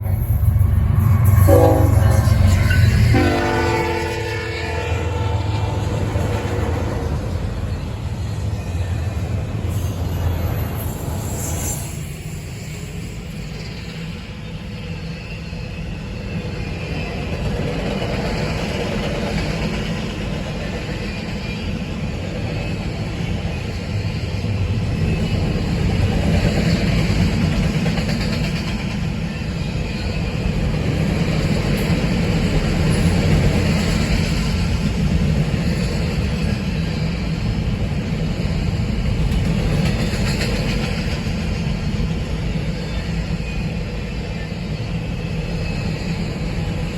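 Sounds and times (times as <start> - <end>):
train wheels rumbling on rails: 0.0 - 46.9.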